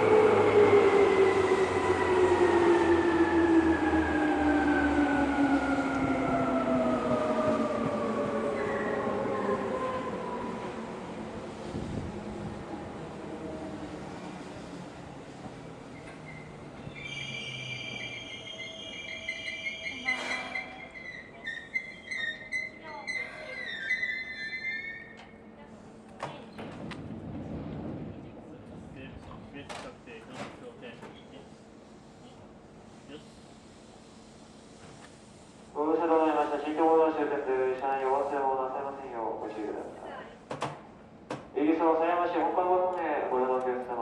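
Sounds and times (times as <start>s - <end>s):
train low rumble: 0.0s - 44.0s
train brakes squealing: 15.9s - 25.4s.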